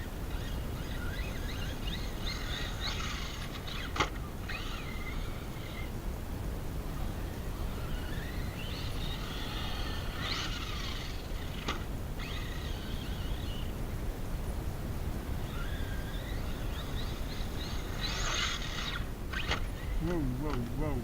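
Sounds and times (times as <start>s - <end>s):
electric motor whining: 0.0s - 14.1s, 15.2s - 21.0s.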